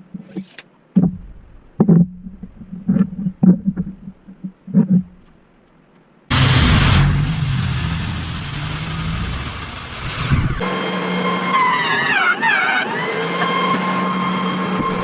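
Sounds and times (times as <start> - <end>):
sawmill motor whine: 6.3 - 15.0.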